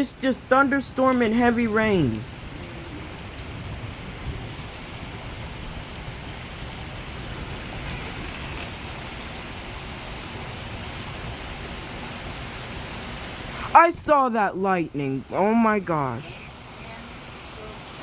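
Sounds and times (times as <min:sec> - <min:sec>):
heavy rain falling: 0:00.0 - 0:18.0
low rumble of thunder: 0:02.2 - 0:13.5.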